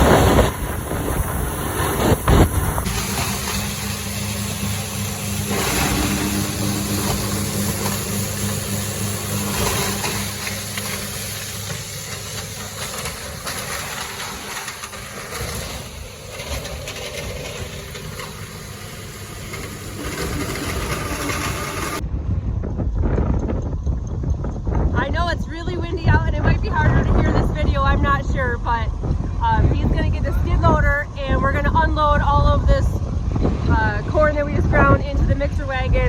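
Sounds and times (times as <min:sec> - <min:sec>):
feed grinder grinding corn: 0:00.0 - 0:22.0
low engine hum: 0:00.0 - 0:36.0.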